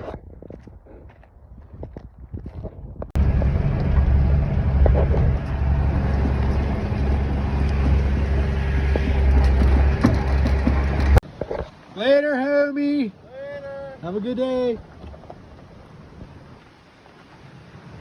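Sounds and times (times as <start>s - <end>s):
vehicle engine running: 3.2s - 11.2s.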